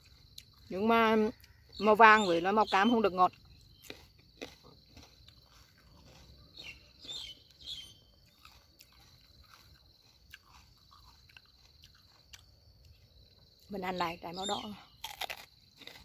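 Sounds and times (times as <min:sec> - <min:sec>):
chewing crisp pepper: 0:00.0 - 0:00.7, 0:03.1 - 0:13.7, 0:14.4 - 0:16.0
bird chirps: 0:01.3 - 0:04.1, 0:06.2 - 0:09.1, 0:14.0 - 0:15.0.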